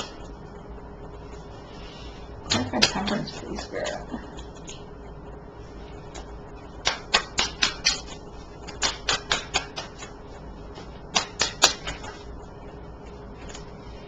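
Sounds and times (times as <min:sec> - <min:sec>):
cards being shuffled: 0:10.8 - 0:12.3.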